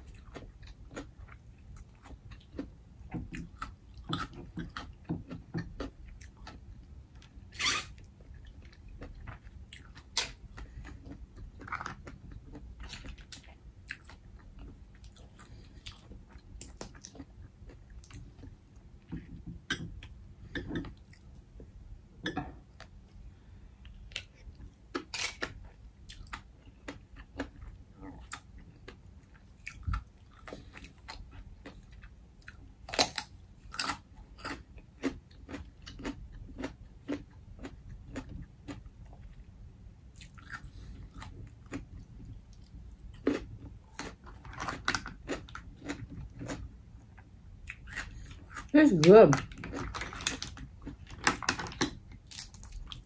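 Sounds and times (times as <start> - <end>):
chewing and mouth smacking: 23.8 - 39.4, 40.1 - 48.7.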